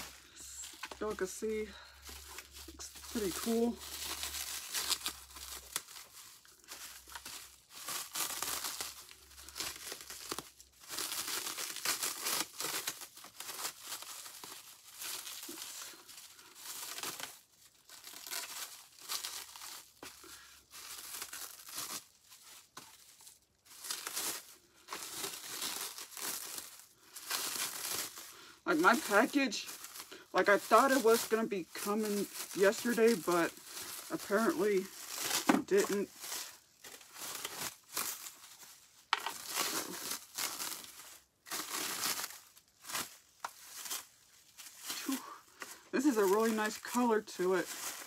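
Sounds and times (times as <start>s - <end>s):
paper crinkling and tearing: 0.0s - 48.0s.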